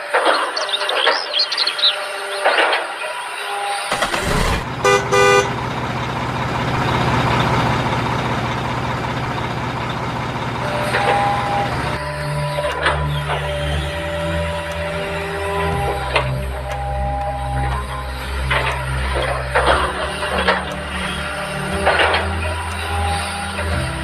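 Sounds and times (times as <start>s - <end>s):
vehicle horn toots: 3.9s - 5.8s
truck engine running: 3.9s - 24.0s.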